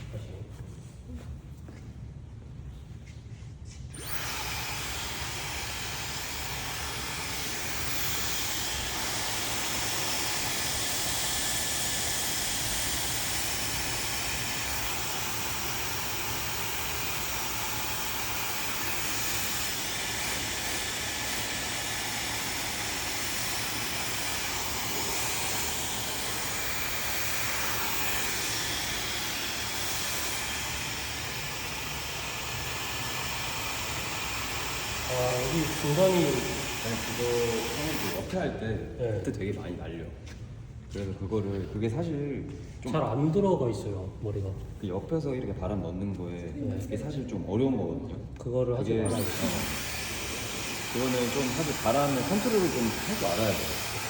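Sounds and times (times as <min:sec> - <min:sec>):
hair dryer blowing: 0:03.9 - 0:38.6, 0:49.0 - 0:54.0.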